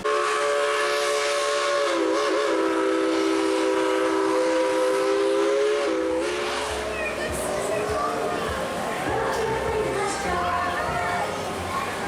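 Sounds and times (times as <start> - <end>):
steam locomotive chime whistle: 0.0 - 7.0.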